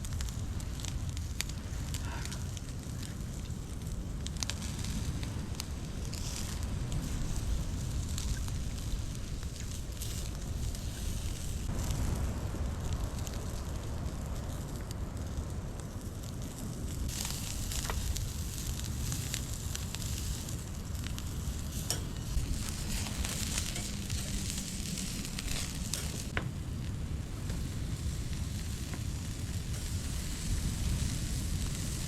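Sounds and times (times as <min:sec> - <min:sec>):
sharp pops and crackles: 0:00.0 - 0:32.0
steady low rumble: 0:00.0 - 0:32.0
food sizzling: 0:17.0 - 0:26.4, 0:27.7 - 0:32.0.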